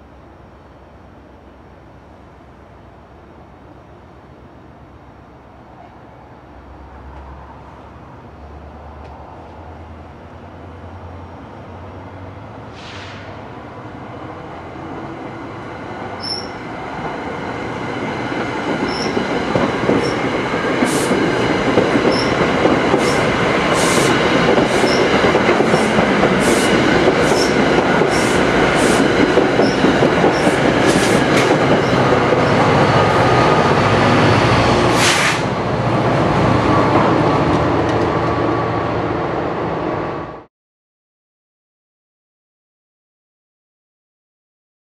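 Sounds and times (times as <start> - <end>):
commuter train passing: 0.0 - 40.5
high wheel squeaks: 16.2 - 16.7, 18.8 - 19.2, 22.1 - 22.4, 24.8 - 25.2, 29.6 - 31.2
wheels clacking over rail joints: 18.1 - 32.8.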